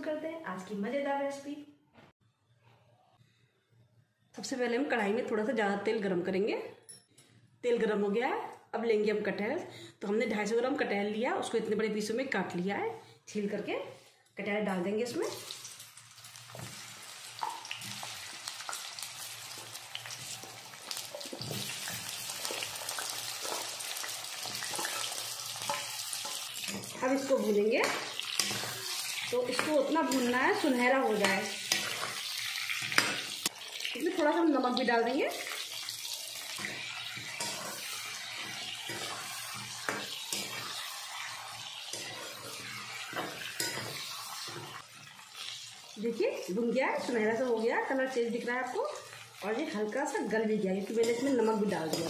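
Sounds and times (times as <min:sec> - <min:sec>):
fruit sizzling in hot oil: 0:15.2 - 0:52.0.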